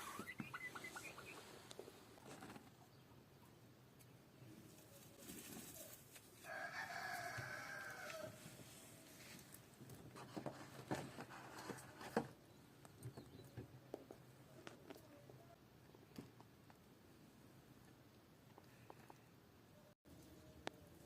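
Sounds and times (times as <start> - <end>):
rooster crowing: 6.4 - 8.4.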